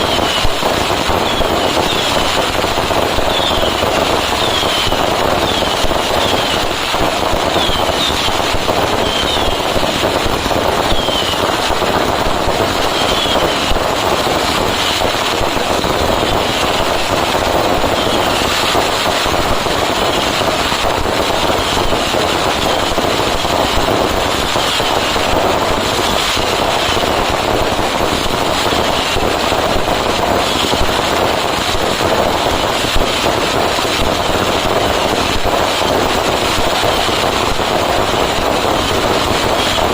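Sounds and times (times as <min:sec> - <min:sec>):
firecrackers crackling: 0:00.0 - 0:39.9
short falling whistles: 0:10.9 - 0:11.4.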